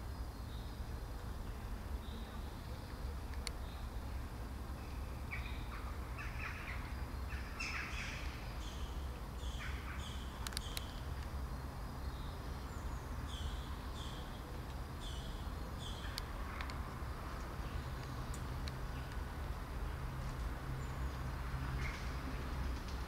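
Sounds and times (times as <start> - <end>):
harsh bird calls: 5.3 - 11.1
sharp clicks: 10.4 - 11.3.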